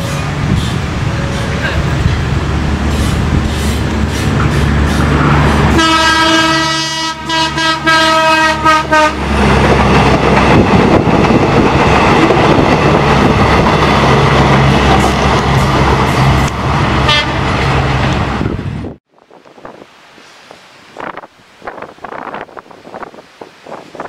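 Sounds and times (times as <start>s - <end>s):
train engine droning: 0.0s - 19.0s
train wheels rumbling on rails: 0.0s - 24.0s
train horn blast: 5.7s - 9.3s, 17.0s - 17.4s.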